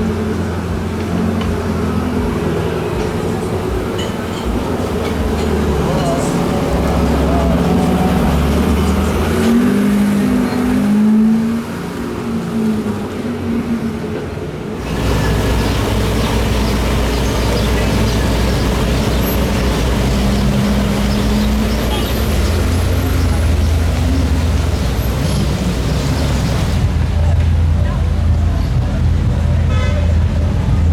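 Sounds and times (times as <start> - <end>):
car engines in traffic: 0.0 - 30.9.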